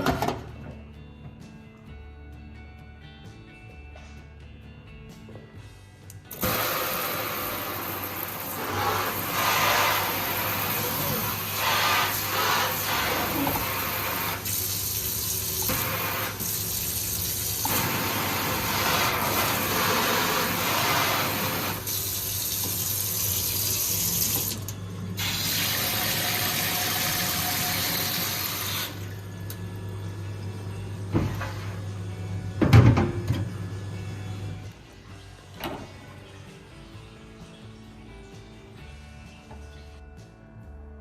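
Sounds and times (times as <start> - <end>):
faucet water running into sink: 6.3 - 29.2.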